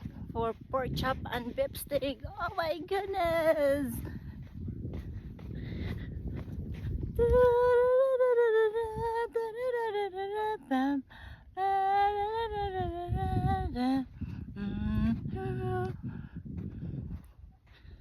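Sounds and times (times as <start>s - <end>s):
woman singing unaccompanied: 0.0s - 4.2s, 7.0s - 16.2s.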